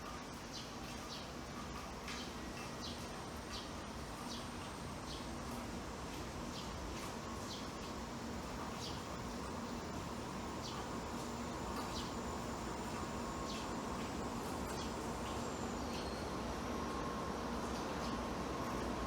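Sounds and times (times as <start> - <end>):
faint electrical hum: 0.0 - 19.0
outdoor background hiss: 0.0 - 19.0.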